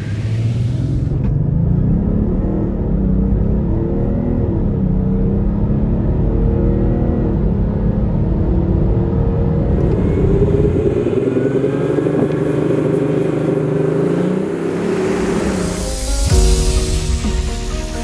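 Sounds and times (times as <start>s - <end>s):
diesel engine running under load: 0.0s - 2.3s, 7.5s - 18.0s.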